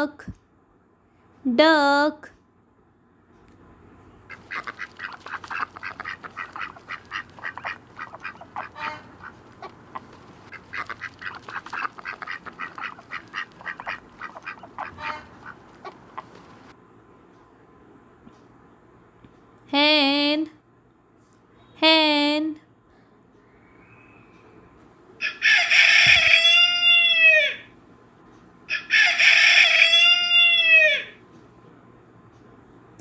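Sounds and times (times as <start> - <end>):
duck quacking: 4.3 - 16.7.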